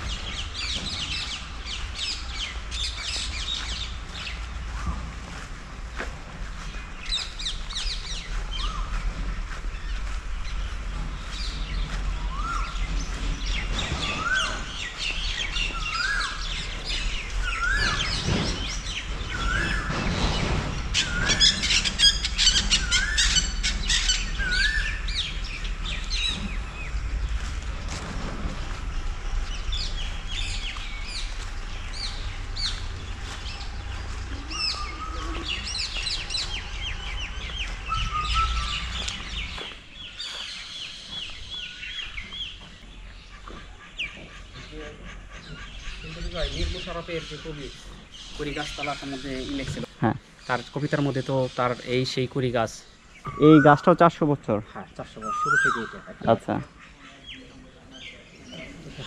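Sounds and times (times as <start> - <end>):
birds chirping and twittering: 0.0 - 59.0
bird whistling rising note: 37.8 - 39.4.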